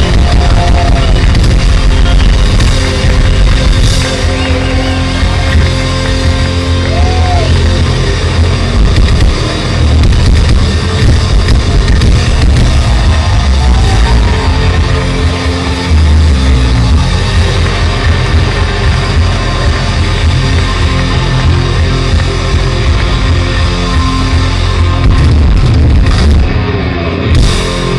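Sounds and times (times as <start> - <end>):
heavy metal band playing live: 0.0 - 27.9.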